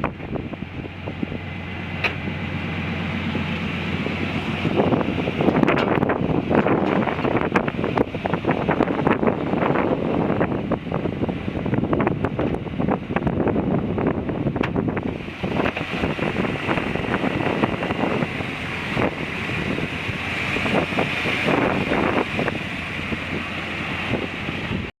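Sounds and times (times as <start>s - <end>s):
truck engine running: 0.0s - 24.9s
wind buffeting microphone: 0.0s - 24.9s.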